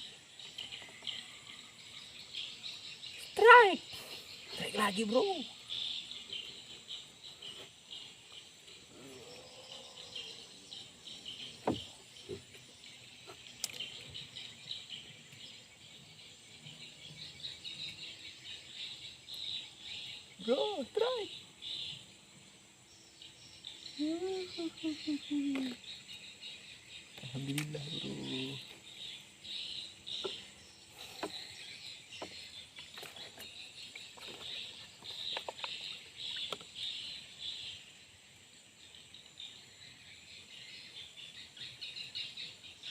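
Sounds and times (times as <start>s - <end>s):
insects chirring: 0.0s - 42.9s
dull knocks: 11.6s - 12.0s.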